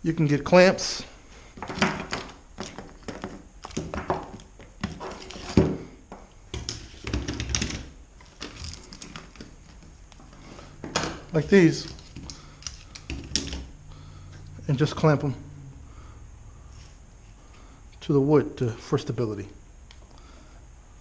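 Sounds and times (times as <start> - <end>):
clamps thunking and knocking: 1.6 - 9.5.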